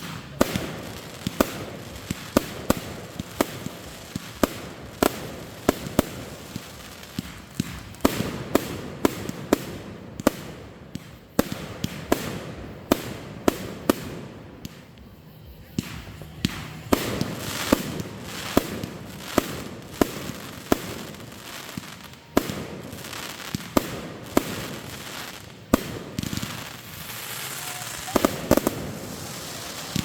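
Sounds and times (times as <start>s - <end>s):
fireworks banging: 0.0s - 30.0s
hiss and rumble: 0.0s - 30.0s.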